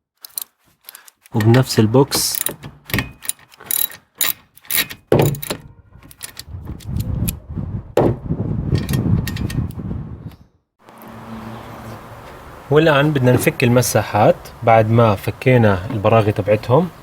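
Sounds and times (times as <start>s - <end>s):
socket wrench clicking: 2.2s - 7.1s.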